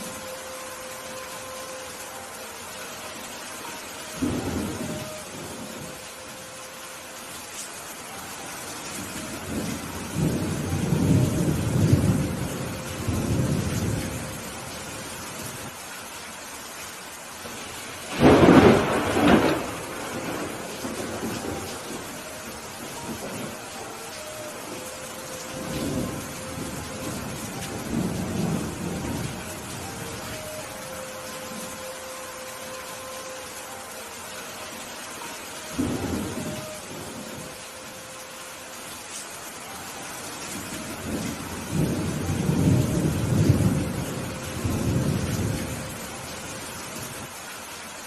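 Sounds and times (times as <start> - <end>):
steady rain: 0.0 - 48.0
thunder rumbling: 3.6 - 6.2, 9.0 - 15.7, 17.4 - 32.0, 35.6 - 37.6, 40.5 - 47.3.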